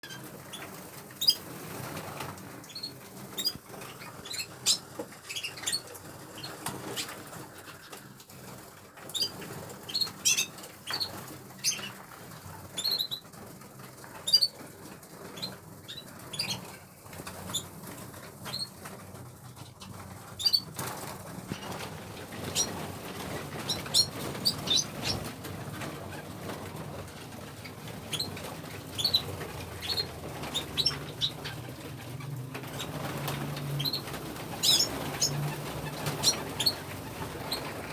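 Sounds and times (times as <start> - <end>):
birds flapping wings: 0.0 - 37.9
canaries chirping: 0.0 - 37.9.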